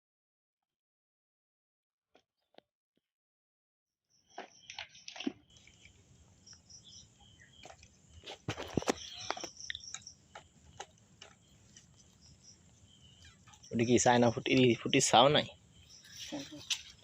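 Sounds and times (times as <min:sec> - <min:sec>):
faint bird chirps: 0:04.2 - 0:10.3, 0:11.5 - 0:17.0
clicks crackles and rustles: 0:07.6 - 0:12.1, 0:16.2 - 0:17.0.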